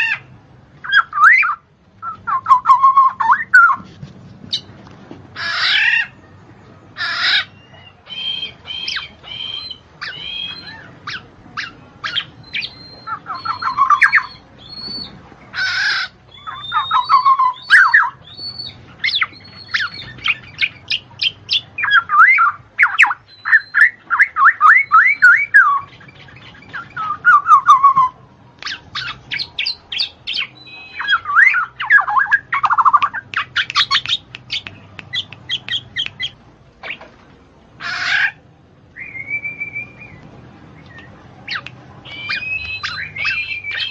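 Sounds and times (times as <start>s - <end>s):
birds chirping and squawking: 0.0s - 6.4s, 7.0s - 37.2s, 37.8s - 43.9s
bird warbling: 7.0s - 37.1s, 40.8s - 43.9s.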